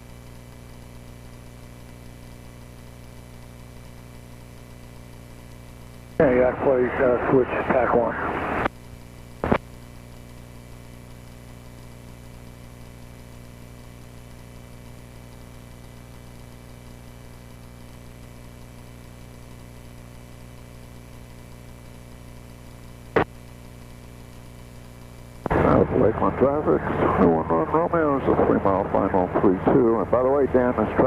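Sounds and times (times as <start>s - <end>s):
piston aircraft engine droning: 25.5s - 31.0s.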